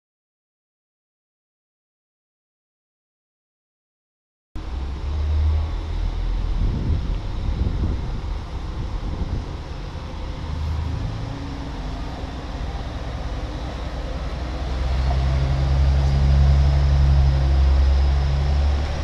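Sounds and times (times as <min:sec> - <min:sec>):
diesel train engines humming: 0:04.6 - 0:19.0.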